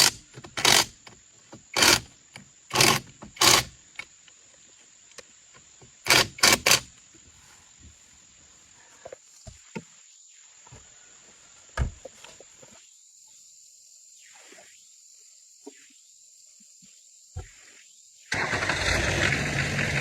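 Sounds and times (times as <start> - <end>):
high-pitched hiss: 6.8 - 18.3.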